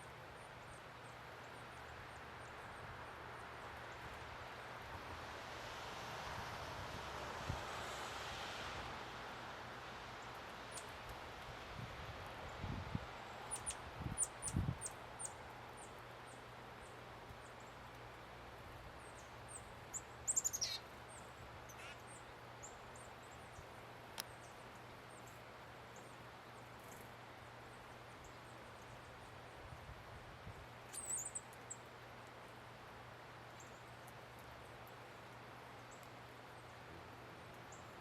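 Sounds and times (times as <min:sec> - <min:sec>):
songbirds high chip calls: 0:19.5 - 0:20.9, 0:21.7 - 0:22.8, 0:30.9 - 0:31.8.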